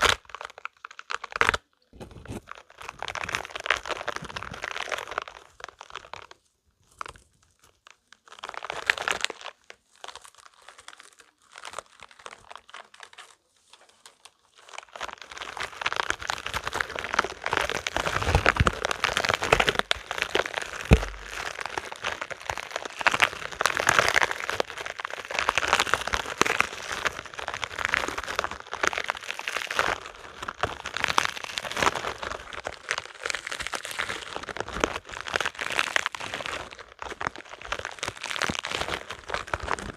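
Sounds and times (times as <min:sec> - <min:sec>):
rubber balls crackling: 0:10.2 - 0:39.9.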